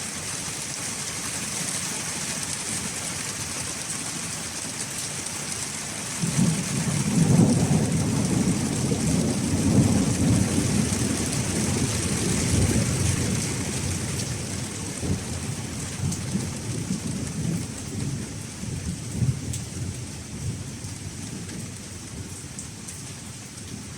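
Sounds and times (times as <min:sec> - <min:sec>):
steady rain hissing: 0:00.0 - 0:23.9
thunder rumbling: 0:06.2 - 0:22.6.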